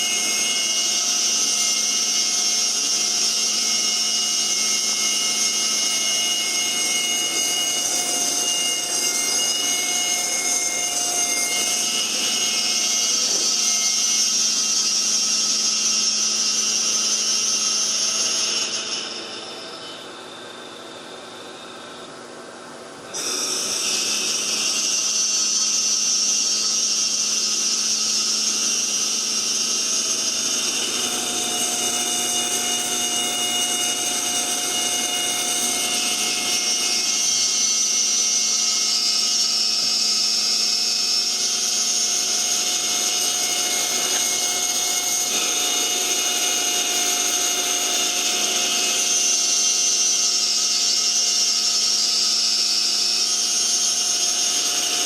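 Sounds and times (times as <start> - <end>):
router spindle milling wood: 0.0 - 19.4, 23.0 - 55.0.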